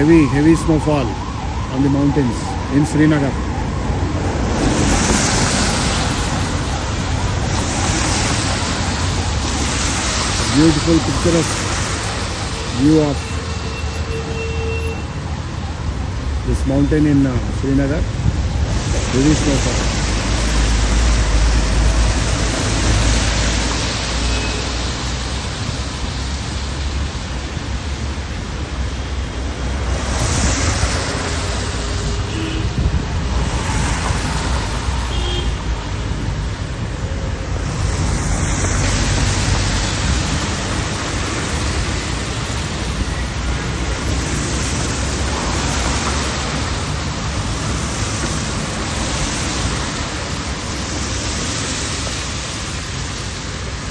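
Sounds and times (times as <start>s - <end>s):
wind buffeting microphone: 17.4s - 23.4s, 29.8s - 51.4s.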